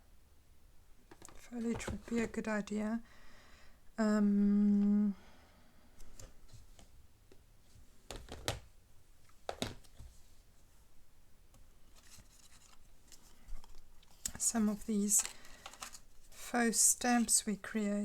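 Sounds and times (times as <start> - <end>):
person humming: 4.0 - 5.3
paper rustling: 11.9 - 16.5.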